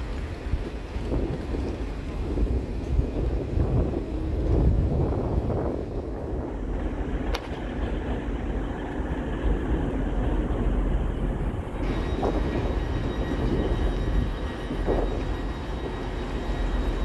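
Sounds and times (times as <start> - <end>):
diesel train engine running: 0.0 - 17.0
wheels rumbling on rails: 0.0 - 17.0
faint high whine: 6.7 - 17.0.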